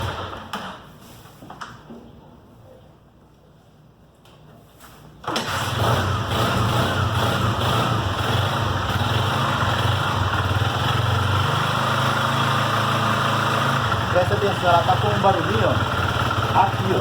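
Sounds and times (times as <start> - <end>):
motorcycle engine kick-started idling: 5.2 - 17.0.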